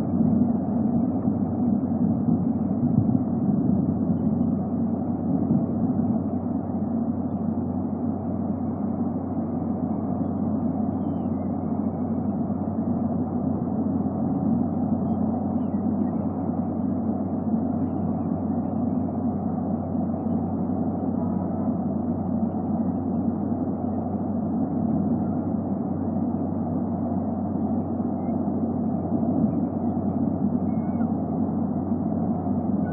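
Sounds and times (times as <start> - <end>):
faint hum: 0.0 - 32.9
low outdoor rumble: 0.0 - 32.9.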